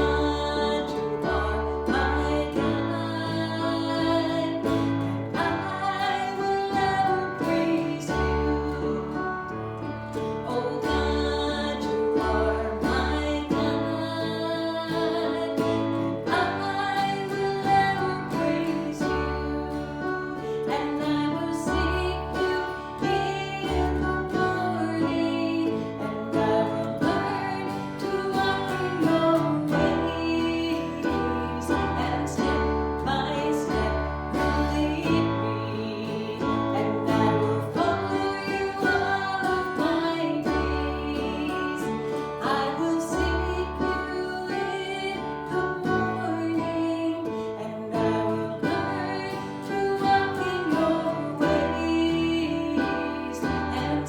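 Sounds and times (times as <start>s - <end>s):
guitar accompaniment: 0.0s - 54.0s
person singing: 0.0s - 54.0s.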